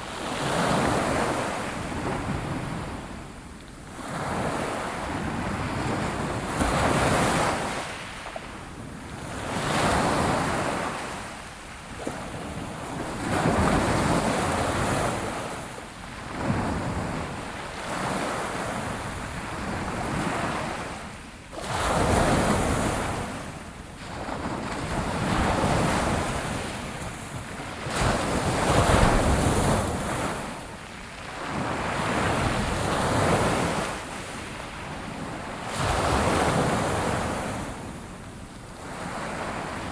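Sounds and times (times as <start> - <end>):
ocean waves washing onto shore: 0.0 - 39.9.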